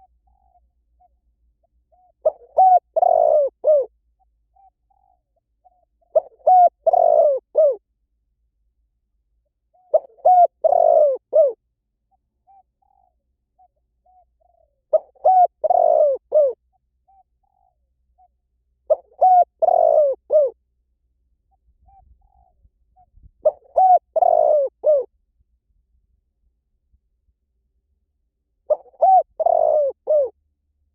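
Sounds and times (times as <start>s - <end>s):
dove cooing: 1.9s - 3.9s, 4.6s - 7.8s, 9.8s - 11.6s, 12.5s - 18.3s, 18.9s - 20.6s, 21.8s - 25.1s, 28.7s - 30.4s.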